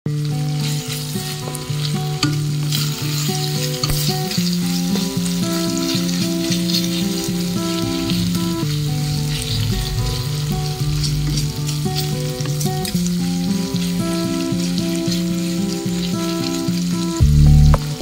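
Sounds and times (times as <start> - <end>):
chicken sizzling in oil: 0.1 - 18.0
wooden spatula stirring in pan: 0.5 - 12.9
low melody of held notes: 7.5 - 14.1, 17.2 - 18.0.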